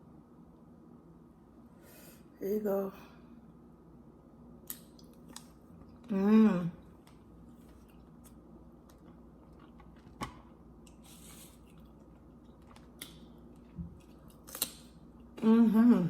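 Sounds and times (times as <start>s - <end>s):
low steady hum: 0.0s - 16.0s
person chewing: 7.6s - 15.4s.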